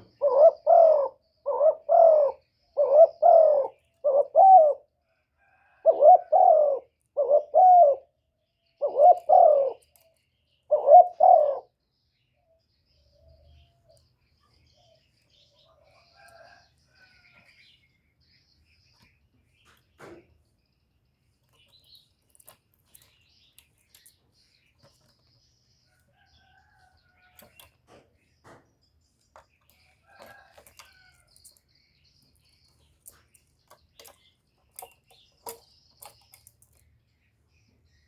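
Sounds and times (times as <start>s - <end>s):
dove cooing: 0.0s - 8.1s, 8.8s - 10.0s, 10.7s - 11.8s
light clicks or rustles: 21.4s - 26.1s, 26.8s - 36.9s.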